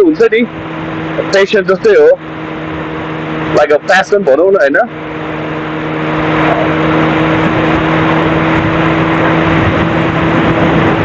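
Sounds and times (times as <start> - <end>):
motorcycle engine running: 0.0 - 11.0
wind rushing: 5.1 - 11.0.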